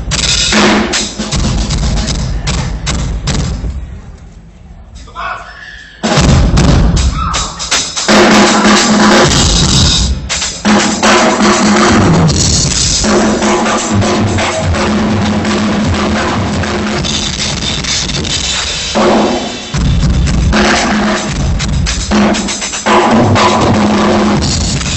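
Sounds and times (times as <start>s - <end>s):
drum kit playing: 0.0s - 4.0s, 6.0s - 24.9s.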